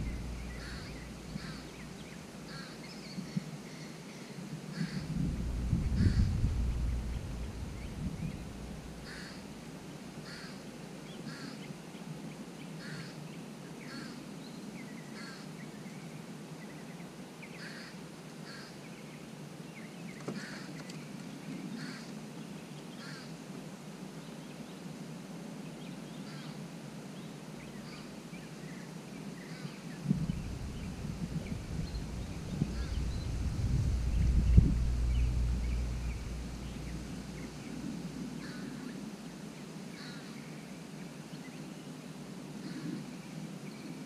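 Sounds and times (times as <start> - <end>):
low rumble: 0.0 - 2.1, 4.8 - 9.7, 30.0 - 38.8
bird calling: 0.0 - 3.9, 4.7 - 9.6, 10.2 - 11.6, 29.4 - 39.1.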